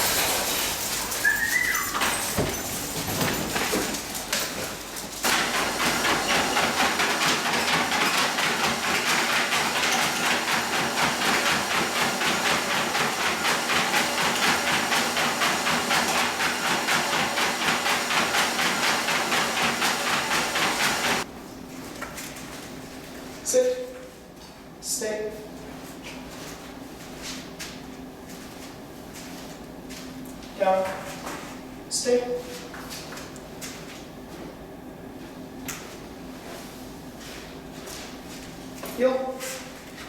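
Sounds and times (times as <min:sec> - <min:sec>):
treadmill hissing: 0:00.0 - 0:21.3
dog paws pattering on treadmill: 0:00.0 - 0:24.6, 0:32.3 - 0:34.6, 0:35.2 - 0:40.0.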